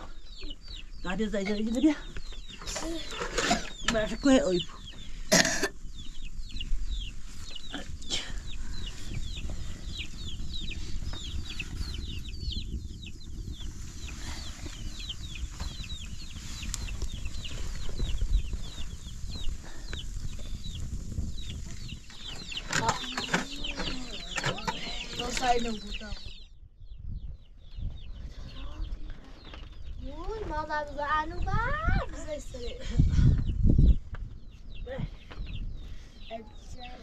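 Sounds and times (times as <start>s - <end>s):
chicks peeping: 0.0s - 37.0s
steady low rumble: 0.0s - 37.0s.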